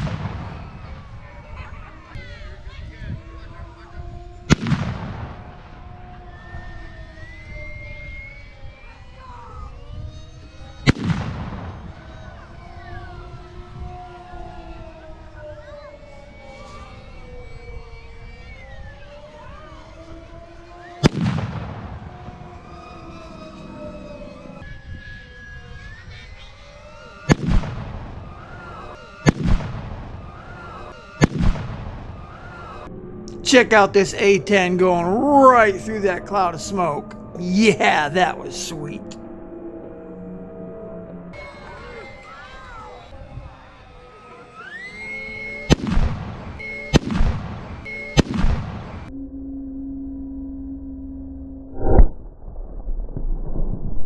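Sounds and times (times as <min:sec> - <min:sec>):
pyrotechnic blasts: 0:00.0 - 0:01.1, 0:04.5 - 0:05.8, 0:10.8 - 0:11.9, 0:21.0 - 0:22.9, 0:27.3 - 0:28.5, 0:29.2 - 0:32.4, 0:45.6 - 0:49.1
model aircraft motors whining: 0:00.0 - 0:33.5, 0:39.2 - 0:49.1
high whine: 0:27.1 - 0:53.9
dull steady hum: 0:38.3 - 0:54.0.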